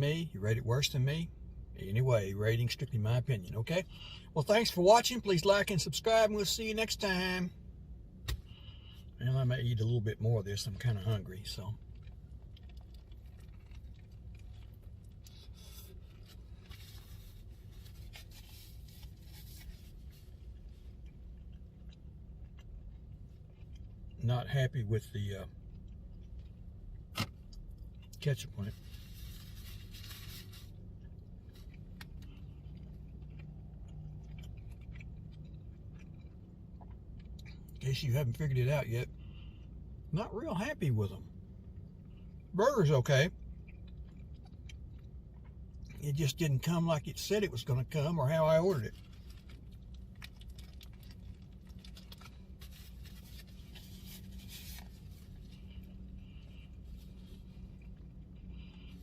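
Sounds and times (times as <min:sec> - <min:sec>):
steady low hum: 0:00.0 - 0:59.0
food wrapper rustling: 0:11.8 - 0:20.9, 0:28.7 - 0:32.9, 0:48.9 - 0:58.7.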